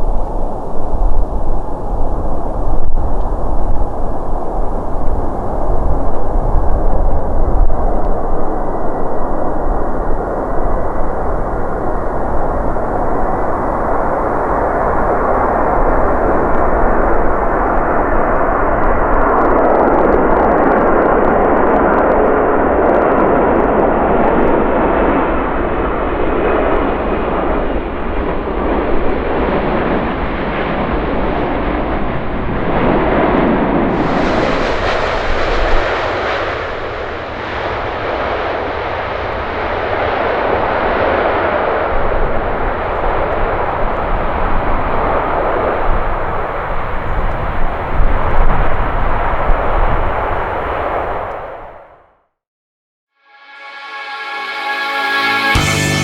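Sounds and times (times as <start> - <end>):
jet engines roaring: 24.8 - 51.5.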